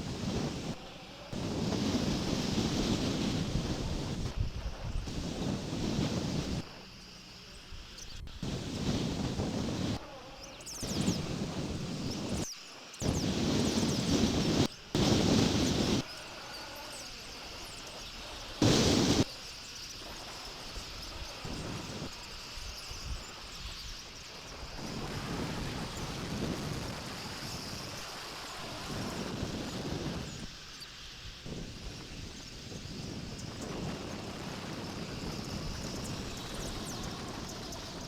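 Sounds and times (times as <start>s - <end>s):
outdoor background noise: 0.0s - 38.0s
wind buffeting microphone: 1.4s - 6.7s, 8.2s - 10.0s, 13.0s - 16.0s, 17.6s - 19.3s, 24.6s - 30.5s, 31.4s - 38.0s.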